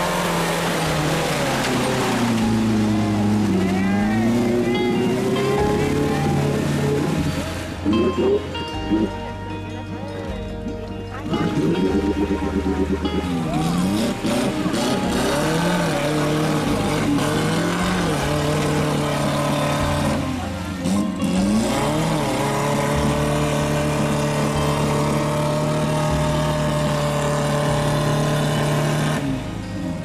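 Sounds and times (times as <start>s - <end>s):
off-road engine revving: 0.0s - 9.7s, 10.4s - 30.0s
background music: 0.0s - 30.0s.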